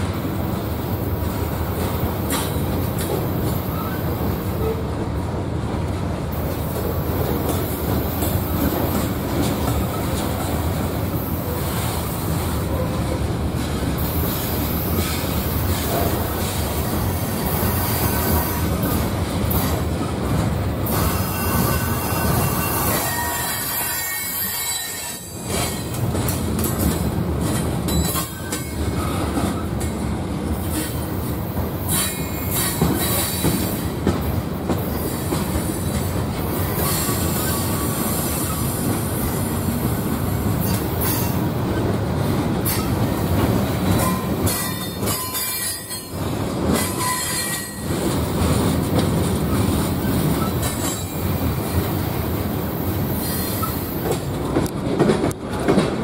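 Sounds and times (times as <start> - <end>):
steel wheels rumbling on rail: 0.0 - 56.0
train cars rattling: 0.0 - 56.0
high wheel squeal: 20.9 - 25.7.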